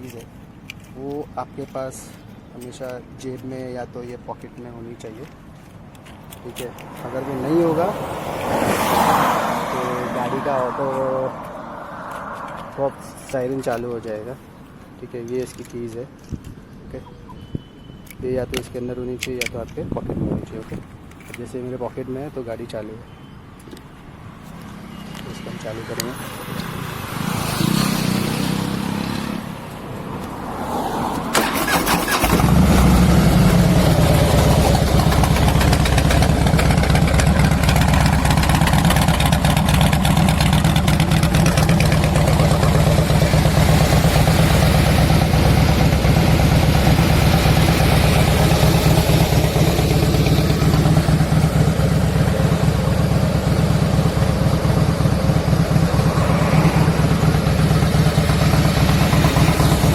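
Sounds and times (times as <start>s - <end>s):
motorcycle engine idling: 32.2s - 59.9s.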